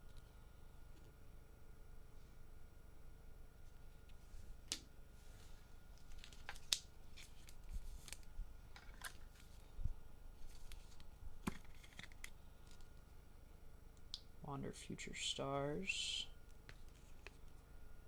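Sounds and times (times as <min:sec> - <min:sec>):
trading cards clicking and rustling: 0:06.0 - 0:09.6, 0:10.4 - 0:13.0.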